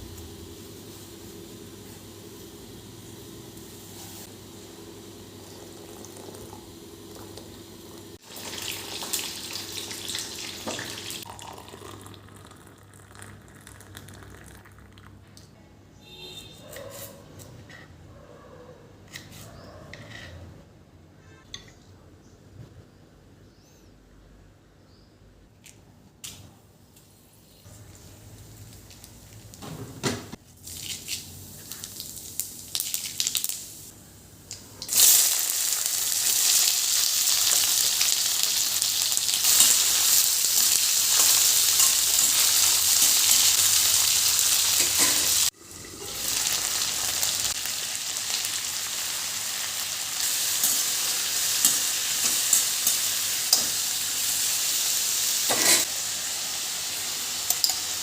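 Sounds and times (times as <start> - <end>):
food sizzling in hot oil: 0.0 - 14.8, 30.6 - 34.0, 34.8 - 58.0
kitchen utensils clattering: 44.8 - 46.3, 55.5 - 55.9.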